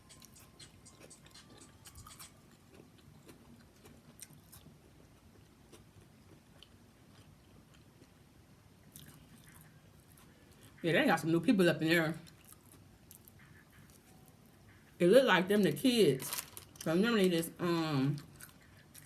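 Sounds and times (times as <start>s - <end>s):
soft mouth clicks: 0.0s - 2.4s
person chewing: 0.0s - 8.2s, 8.8s - 10.8s, 12.2s - 14.4s, 18.2s - 19.0s.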